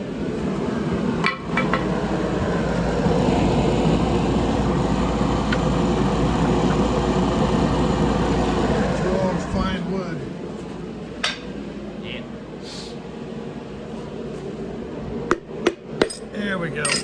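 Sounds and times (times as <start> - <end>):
machine running: 1.7 - 10.1
sharp metal clinks: 16.0 - 17.0.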